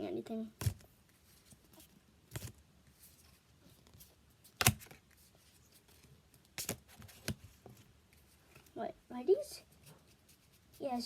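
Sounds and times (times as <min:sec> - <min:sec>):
cards snapping: 0:00.6 - 0:00.9, 0:02.3 - 0:02.6, 0:04.5 - 0:05.0, 0:06.6 - 0:07.5.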